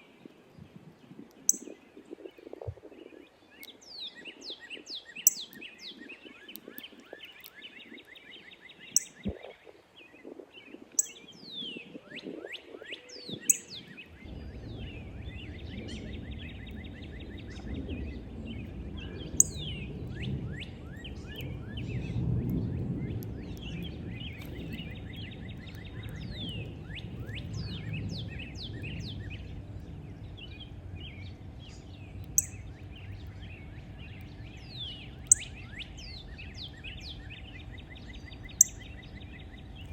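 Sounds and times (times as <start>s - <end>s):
small birds chirping and trilling: 0.0s - 39.9s
low rumble: 13.9s - 39.9s.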